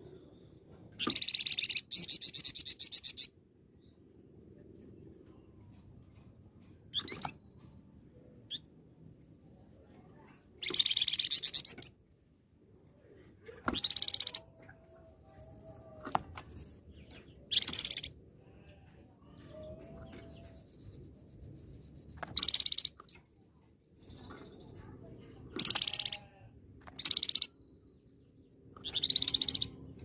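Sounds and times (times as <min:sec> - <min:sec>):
songbird trilled chatter: 0:10.6 - 0:11.9, 0:13.8 - 0:18.8, 0:19.7 - 0:24.9, 0:25.6 - 0:26.3, 0:27.0 - 0:27.9, 0:28.8 - 0:29.9.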